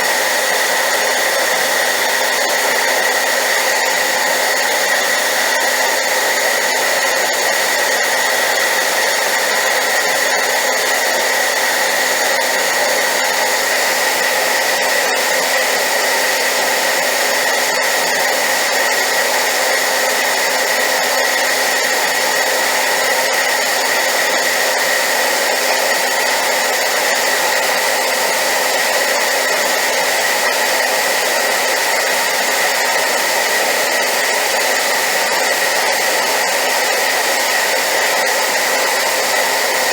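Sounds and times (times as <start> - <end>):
hairdryer running: 0.0 - 39.9.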